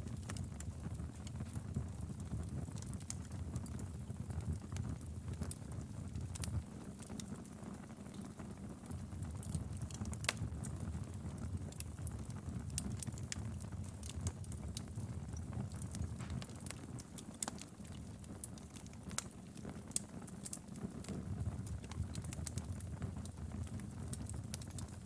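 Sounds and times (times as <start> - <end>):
fire crackling and popping: 0.0 - 25.0
fire rumbling: 0.0 - 25.0.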